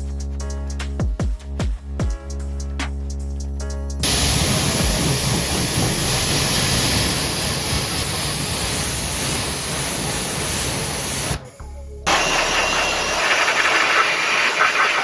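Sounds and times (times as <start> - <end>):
pressure washer spraying water: 4.0 - 11.4, 12.1 - 15.0.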